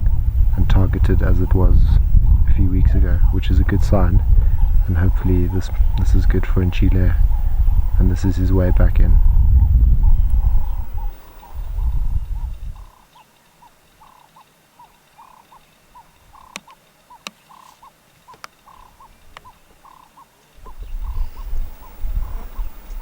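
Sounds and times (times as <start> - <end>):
low rumble: 0.0 - 12.9
small animal chirping: 9.5 - 23.0
sharp clicks: 16.4 - 19.6.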